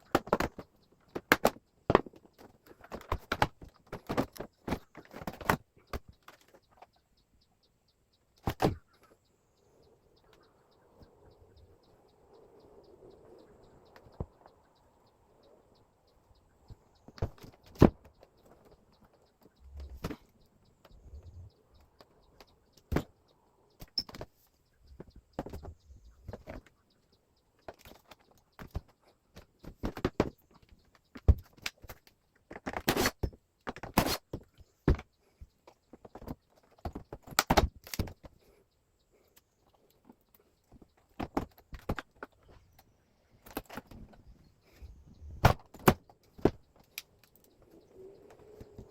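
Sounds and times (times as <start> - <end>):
air conditioner parts clicking and knocking: 0.0 - 48.9.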